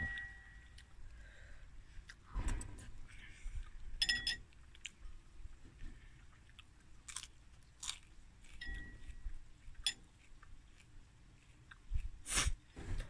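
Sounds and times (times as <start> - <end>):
person chewing food: 0.0 - 2.3, 3.0 - 12.7
metal spoon clinking ceramic bowl: 4.0 - 4.4.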